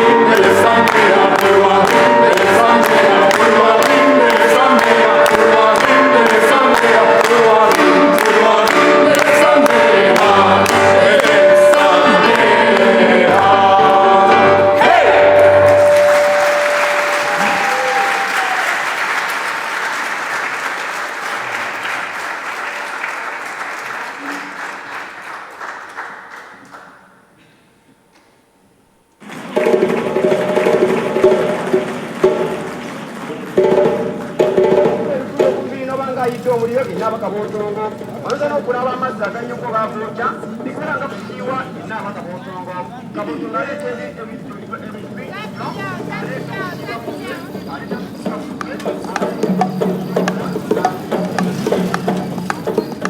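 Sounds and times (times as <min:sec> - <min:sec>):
vocal ensemble singing in harmony: 0:00.0 - 0:18.4
steady percussive beat: 0:00.0 - 0:18.5, 0:29.5 - 0:35.8, 0:48.3 - 0:53.0
audience applause: 0:00.0 - 0:27.1, 0:29.2 - 0:34.5, 0:48.7 - 0:53.0.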